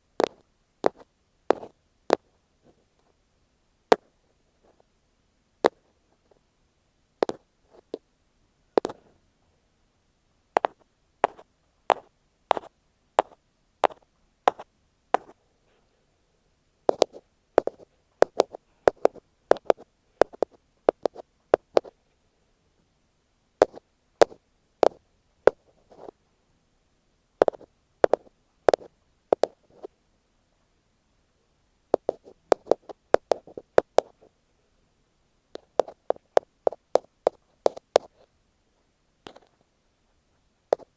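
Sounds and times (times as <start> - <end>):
ear pick tapping on microphone: 10.6 - 14.6, 16.9 - 21.9, 27.4 - 29.6, 32.0 - 34.1.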